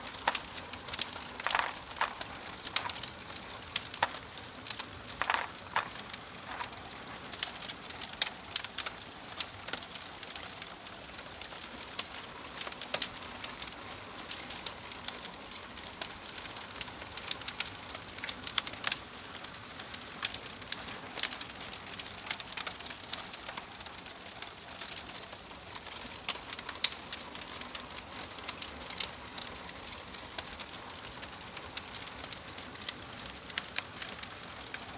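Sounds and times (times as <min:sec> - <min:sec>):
wood fire crackling: 0:00.0 - 0:34.9.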